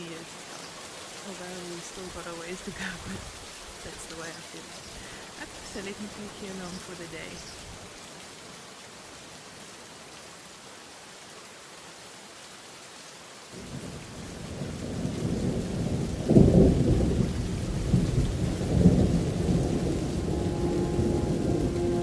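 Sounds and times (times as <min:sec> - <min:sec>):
rain: 0:00.0 - 0:22.0
rolling thunder: 0:13.6 - 0:22.0
held musical notes: 0:19.4 - 0:22.0.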